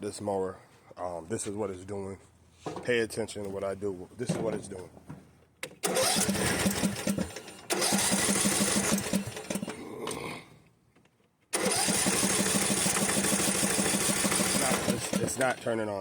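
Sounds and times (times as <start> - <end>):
engine cranking on starter: 5.7 - 9.8, 11.5 - 16.0.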